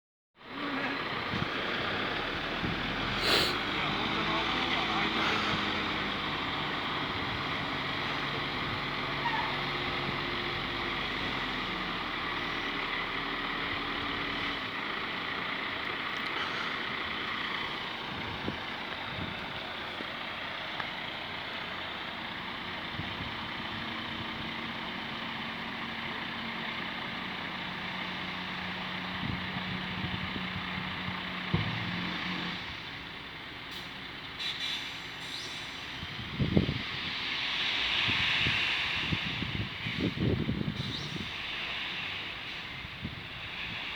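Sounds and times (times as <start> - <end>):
dump truck engine running: 0.4 - 43.9.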